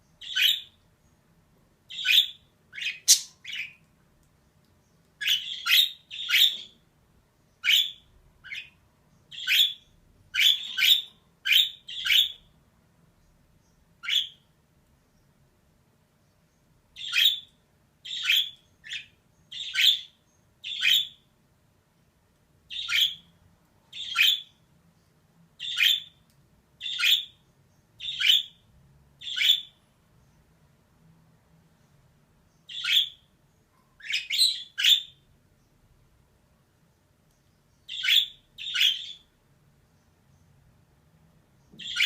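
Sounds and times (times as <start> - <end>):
budgerigar calls: 1.9 - 3.8, 10.4 - 12.4, 37.9 - 39.2, 41.8 - 42.0.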